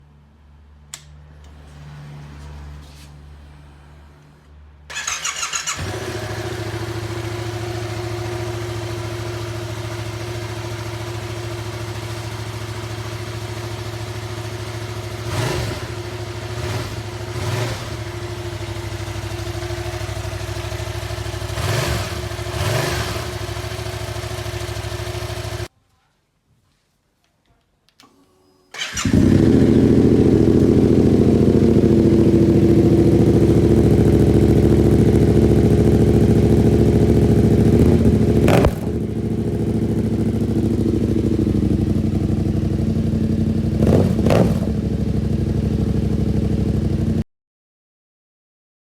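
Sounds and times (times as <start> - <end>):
motorcycle engine idling: 4.9 - 25.7, 28.8 - 47.2
electric starter cranking: 28.7 - 29.5
engine throttle blips: 28.8 - 47.0.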